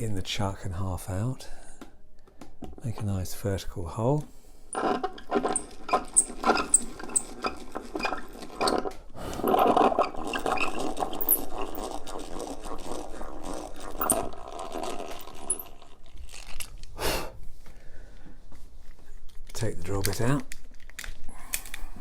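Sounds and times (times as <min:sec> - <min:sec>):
hand drill boring into wood: 0:04.7 - 0:16.0.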